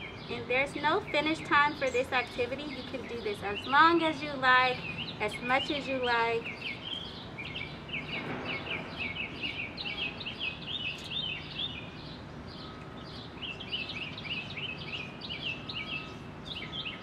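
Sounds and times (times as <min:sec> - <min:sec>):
bird chirping: 0:00.0 - 0:17.0
outdoor background hum: 0:00.0 - 0:17.0.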